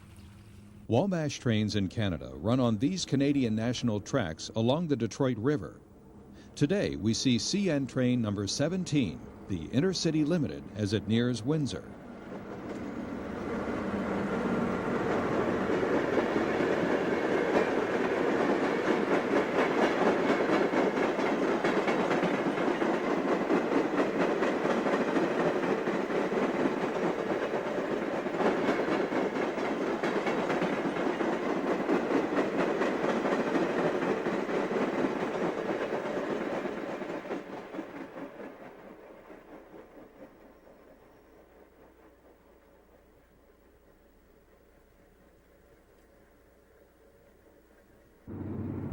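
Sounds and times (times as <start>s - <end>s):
train wheels clicking over rail joints: 12.3s - 44.1s.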